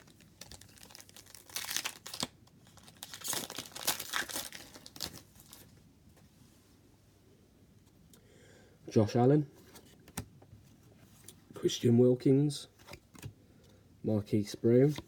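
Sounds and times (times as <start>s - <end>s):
plastic wrapper tearing and crinkling: 0.0s - 5.6s.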